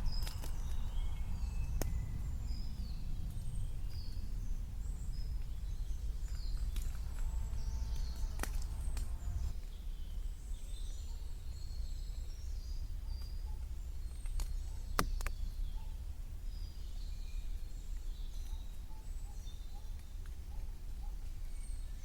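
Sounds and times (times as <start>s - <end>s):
steady low rumble: 0.0s - 10.9s
small birds chirping: 0.0s - 22.0s.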